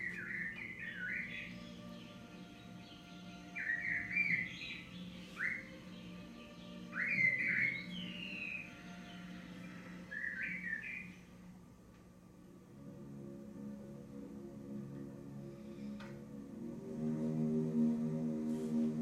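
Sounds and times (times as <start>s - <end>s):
songbird chirping: 0.0s - 12.0s
faint low hum: 7.9s - 19.0s.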